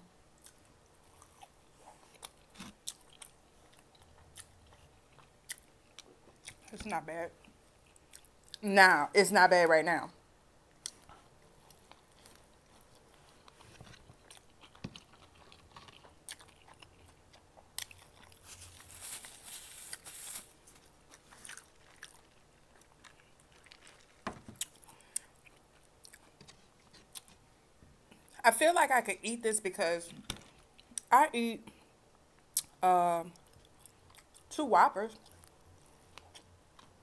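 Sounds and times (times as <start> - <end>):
person chewing: 0.4 - 6.7, 7.4 - 8.6, 10.8 - 27.4, 33.4 - 34.5, 35.2 - 37.0
soft rustle: 18.3 - 24.6.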